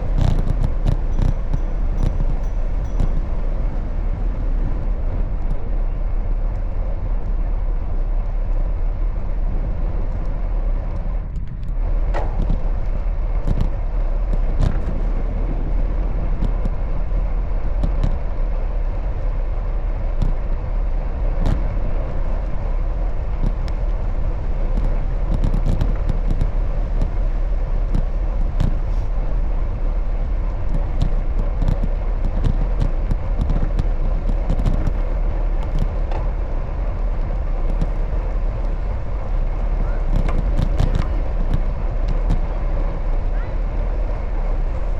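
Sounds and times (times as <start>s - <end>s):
bicycle road noise: 0.0s - 44.9s
wind rumble: 0.0s - 44.9s
sharp clicks and rattles: 30.4s - 42.6s.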